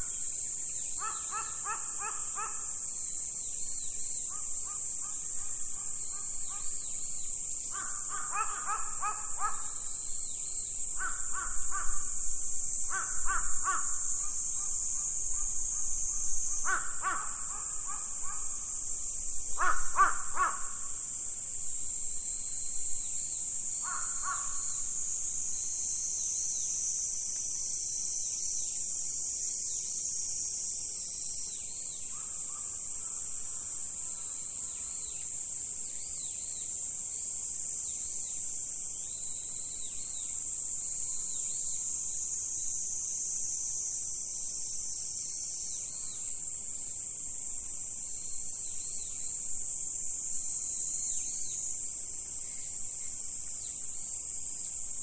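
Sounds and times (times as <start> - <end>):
high-pitched insect chorus: 0.0 - 55.0
crow cawing: 1.0 - 2.7, 7.7 - 9.8, 11.0 - 12.2, 12.9 - 14.7, 16.6 - 18.7, 19.6 - 21.0, 23.8 - 24.8.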